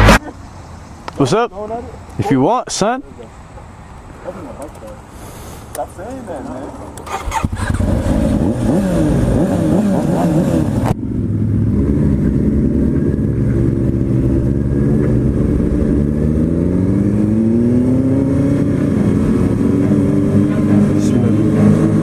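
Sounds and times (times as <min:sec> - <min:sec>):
motorcycle engine revving: 0:07.0 - 0:22.0.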